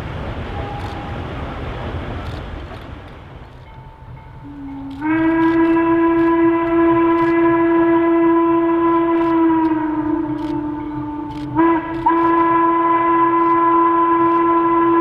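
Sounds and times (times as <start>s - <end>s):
steam locomotive whistle: 0.5s - 1.3s, 4.4s - 15.0s.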